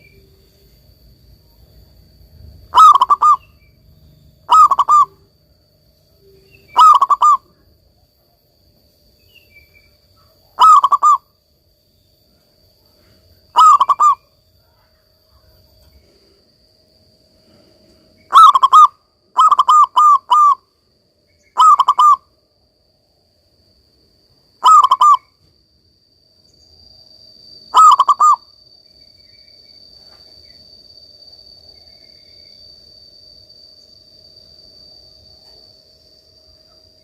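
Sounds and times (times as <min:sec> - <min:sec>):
dove cooing: 0:02.7 - 0:03.5, 0:04.5 - 0:05.2, 0:06.7 - 0:07.6, 0:10.2 - 0:11.2, 0:13.6 - 0:14.2, 0:18.3 - 0:20.6, 0:21.6 - 0:22.2, 0:24.6 - 0:25.3, 0:27.7 - 0:28.4.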